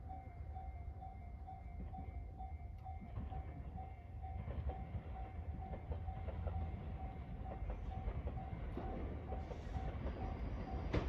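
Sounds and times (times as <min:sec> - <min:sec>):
electric train rumble: 0:00.0 - 0:11.0
level crossing warning bell: 0:00.0 - 0:11.0
train wheels clicking on rails: 0:03.0 - 0:11.0.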